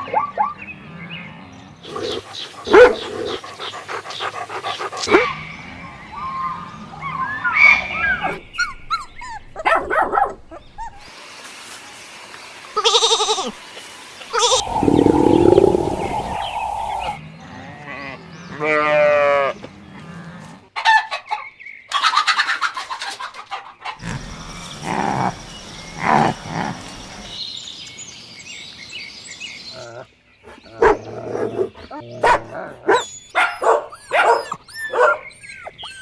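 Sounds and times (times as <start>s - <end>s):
farm animals calling: 14.4s - 17.2s.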